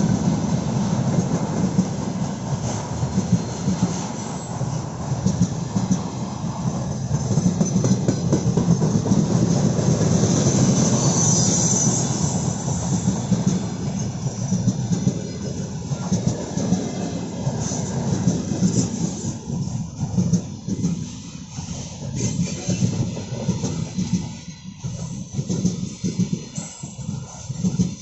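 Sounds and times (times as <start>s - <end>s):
freight train wheels rumbling: 0.0s - 28.0s
high-pitched wheel squeal: 10.5s - 13.7s.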